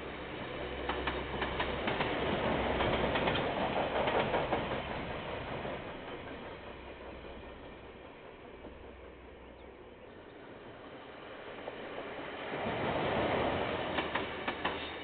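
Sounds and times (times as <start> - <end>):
low train rumble: 0.0 - 15.0
train wheels clacking over rails: 0.5 - 9.8, 10.6 - 15.0.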